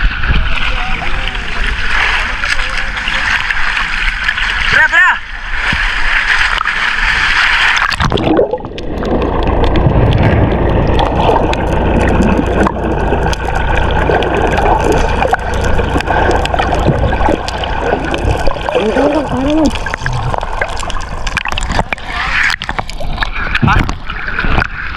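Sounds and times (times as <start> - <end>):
water sloshing and gurgling: 0.0 - 24.9
low rumble: 7.9 - 24.9.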